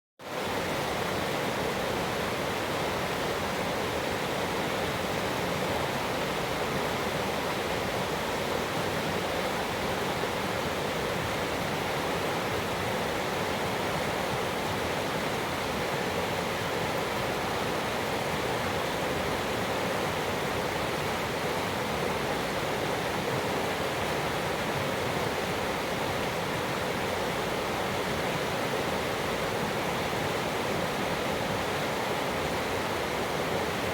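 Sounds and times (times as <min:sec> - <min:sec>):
creek water rushing: 0:00.3 - 0:33.9.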